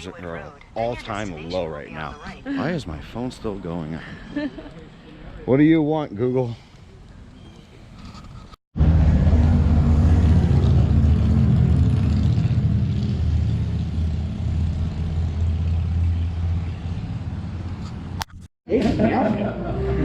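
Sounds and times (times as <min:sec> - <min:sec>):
car engine and road noise: 0:07.9 - 0:18.5.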